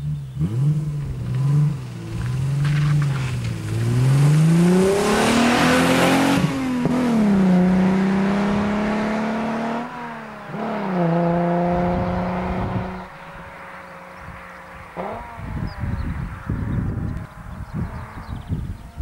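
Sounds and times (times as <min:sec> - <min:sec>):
car engine accelerating hard: 0:00.0 - 0:18.6.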